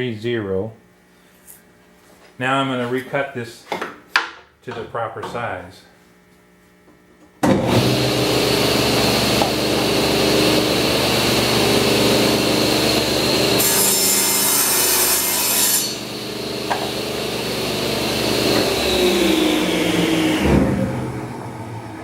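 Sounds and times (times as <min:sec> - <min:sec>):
table saw humming: 0:07.4 - 0:22.0.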